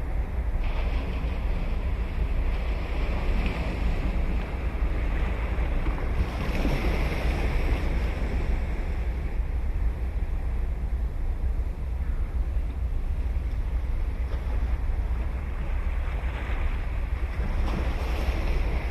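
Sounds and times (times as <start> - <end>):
ocean surf breaking on beach: 0.0 - 9.4
wind rumble on microphone: 0.0 - 18.9.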